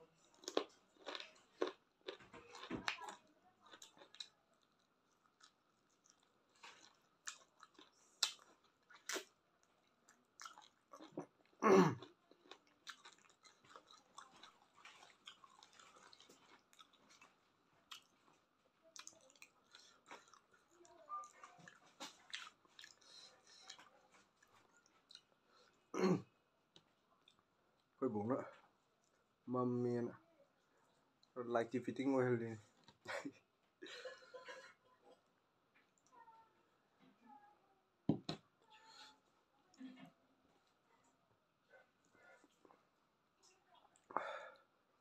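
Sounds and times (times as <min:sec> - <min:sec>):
chewing and biting: 0:00.2 - 0:25.3.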